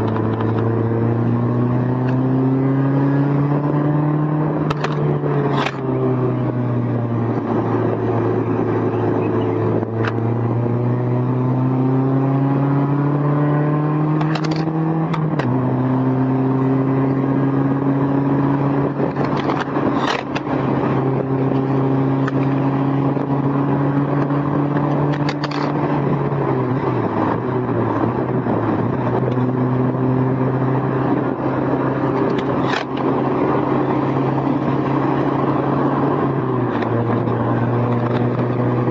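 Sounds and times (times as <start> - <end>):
car engine pulling: 0.0 - 38.9
recorder rattling clicks: 4.6 - 5.9, 14.2 - 15.5, 19.1 - 20.5, 24.2 - 25.8, 32.1 - 33.2, 36.7 - 38.9.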